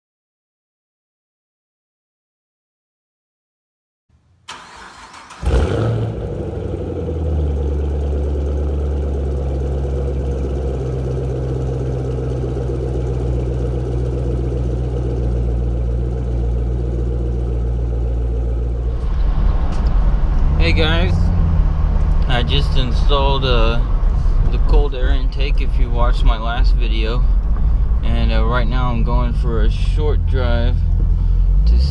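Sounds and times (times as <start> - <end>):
car engine starting and idling: 4.2 - 31.9.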